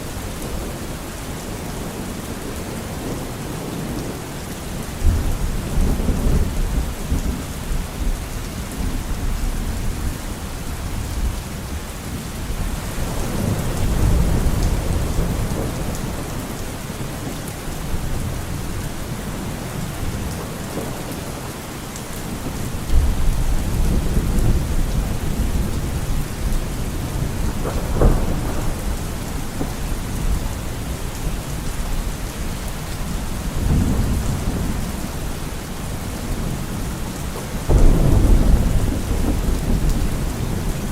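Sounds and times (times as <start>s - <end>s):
heavy rain: 0.0s - 40.9s
rolling thunder: 12.8s - 17.2s, 22.4s - 32.5s, 33.4s - 35.3s, 35.9s - 40.9s
sharp thunderclap: 27.0s - 30.4s, 33.6s - 34.8s, 37.6s - 40.9s.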